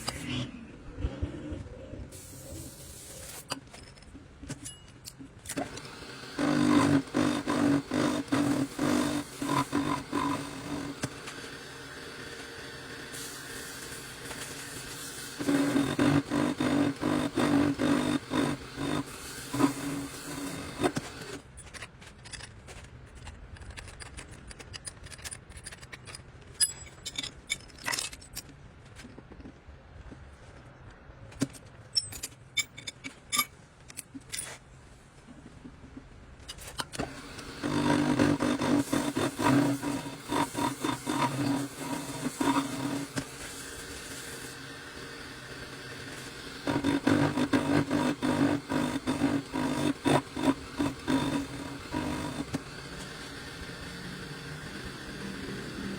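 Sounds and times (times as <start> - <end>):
metal parts clinking and scraping: 3.2 - 5.6, 21.4 - 29.2, 31.3 - 34.7.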